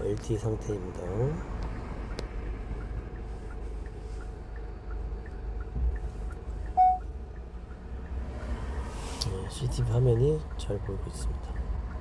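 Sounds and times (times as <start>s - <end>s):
car road and engine noise: 0.0s - 12.0s
faint regular ticking: 1.4s - 8.2s, 9.8s - 12.0s
short beep: 6.8s - 7.1s.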